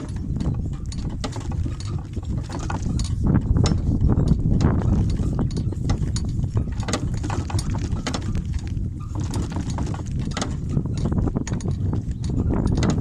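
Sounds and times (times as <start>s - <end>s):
short clicks and knocks: 0.0s - 13.0s
wind buffeting microphone: 0.0s - 13.0s.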